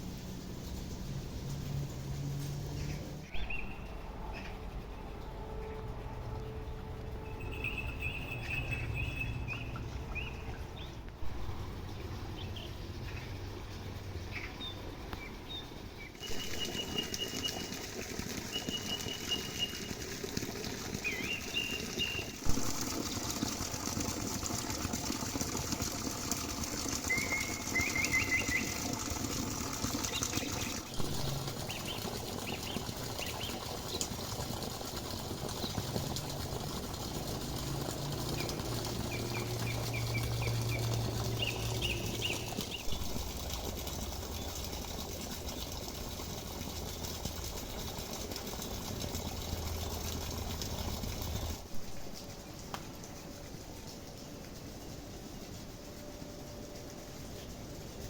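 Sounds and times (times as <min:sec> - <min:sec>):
small birds chirping: 0:27.1 - 0:29.0, 0:38.4 - 0:43.2.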